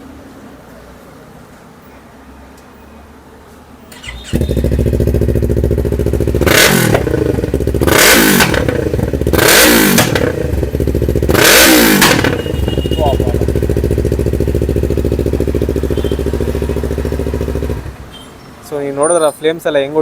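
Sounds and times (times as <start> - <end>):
engine starter turning: 3.9 - 5.5, 6.4 - 10.6, 11.4 - 12.5
motorcycle engine idling and revving: 3.9 - 18.6.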